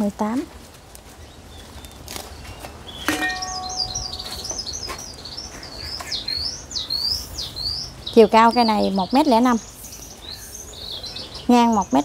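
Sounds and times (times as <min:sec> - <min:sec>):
songbird chirping: 0:00.0 - 0:12.0
ringing knock: 0:03.1 - 0:04.4.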